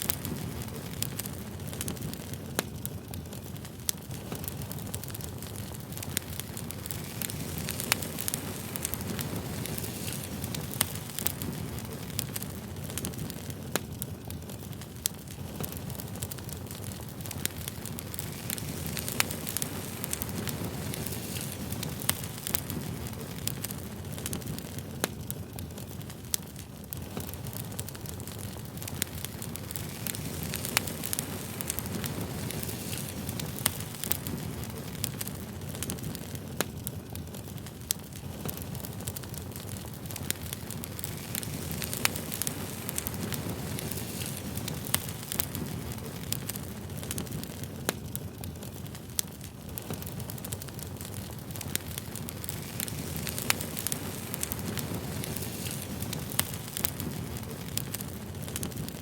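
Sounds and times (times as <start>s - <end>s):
burning wood crackling and popping: 0.0s - 59.0s
flames rushing: 0.0s - 59.0s.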